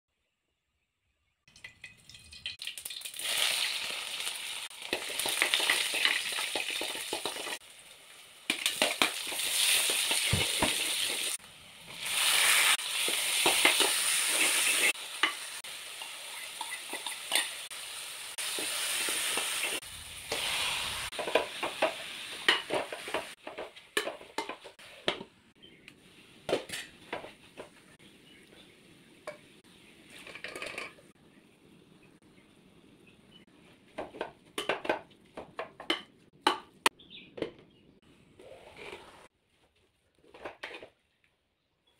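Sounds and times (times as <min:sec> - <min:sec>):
food sizzling in oil: 0:01.9 - 0:23.4.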